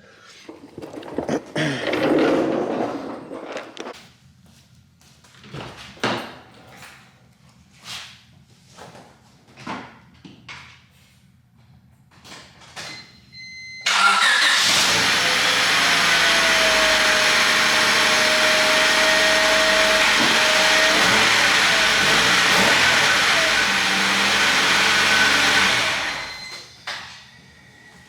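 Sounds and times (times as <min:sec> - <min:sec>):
car engine starting and running: 0:13.9 - 0:26.5.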